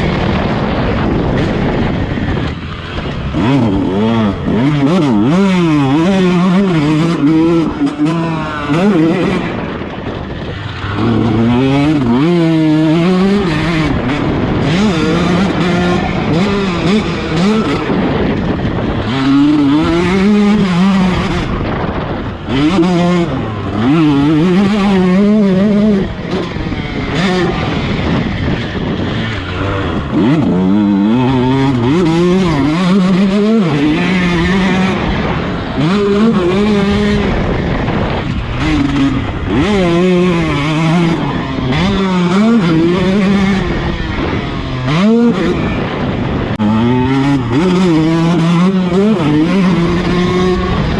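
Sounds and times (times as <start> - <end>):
two-stroke motorcycle engine revving: 0.0 - 50.9.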